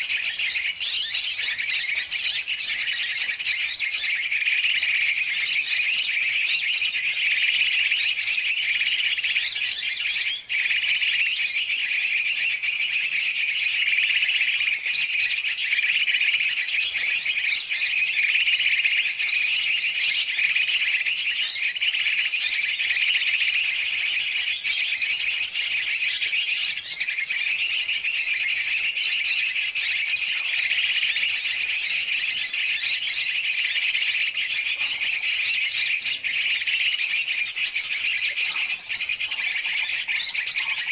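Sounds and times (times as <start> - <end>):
birds chirping and chattering: 0.0 - 40.9
fast repeated bird trills: 0.0 - 40.9.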